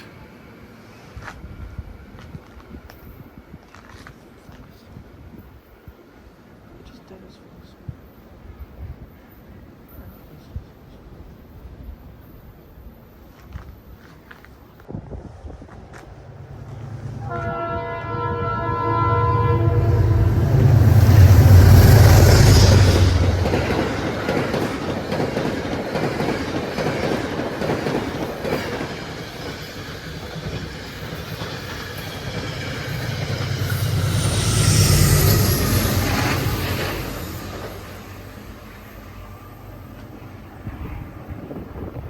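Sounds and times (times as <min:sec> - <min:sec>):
train rumbling past: 0:04.9 - 0:42.0
wheels clacking on rails: 0:15.2 - 0:42.0
train horn: 0:16.7 - 0:23.4.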